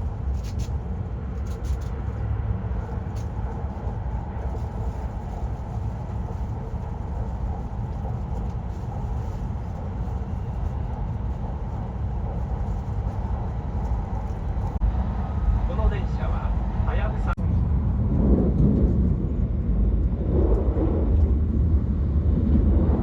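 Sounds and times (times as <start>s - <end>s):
train rumble from inside cabin: 0.0s - 23.0s.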